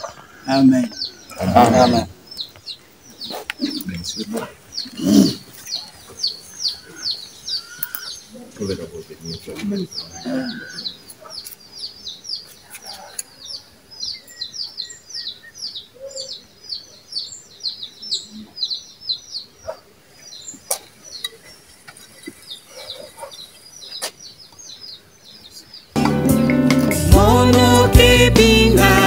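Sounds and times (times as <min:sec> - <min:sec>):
small bird chirping: 0:00.0 - 0:26.0
loud music with singing: 0:26.0 - 0:29.0.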